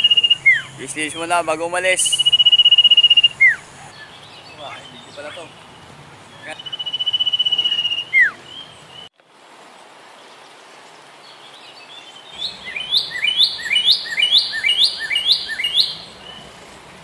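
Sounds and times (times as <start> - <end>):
bird calling repeated notes: 0.0 - 9.1, 12.4 - 16.9
outdoor background noise: 0.0 - 17.0.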